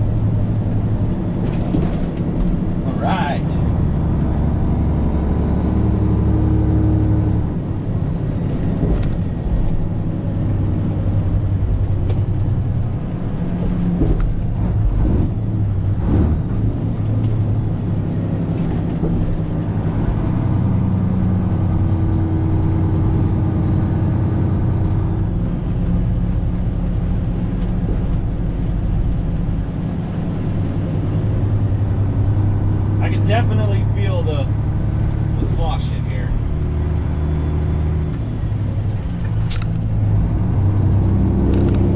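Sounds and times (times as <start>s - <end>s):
truck engine running: 0.0s - 41.9s.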